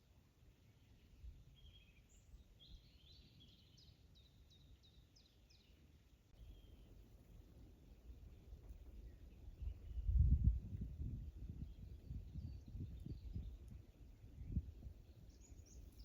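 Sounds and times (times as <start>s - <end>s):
songbird singing: 0.0s - 16.0s
wind rumble on microphone: 8.0s - 16.0s.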